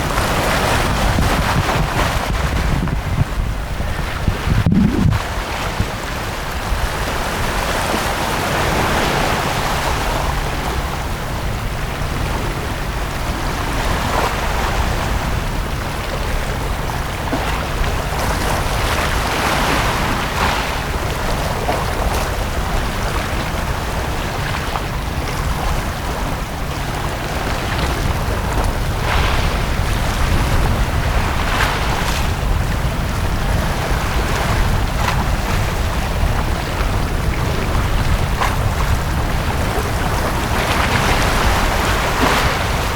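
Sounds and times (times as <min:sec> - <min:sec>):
small waves breaking on beach: 0:00.0 - 0:42.9
steady low rumble: 0:02.1 - 0:06.0.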